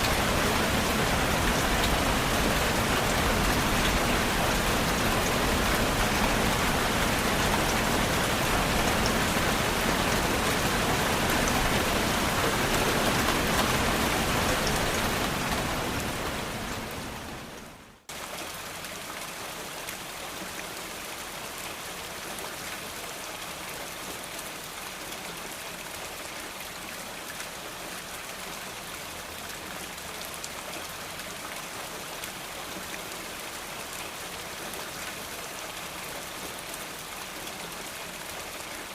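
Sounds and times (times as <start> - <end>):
heavy rain: 0.0 - 38.9
light rain: 0.0 - 38.9.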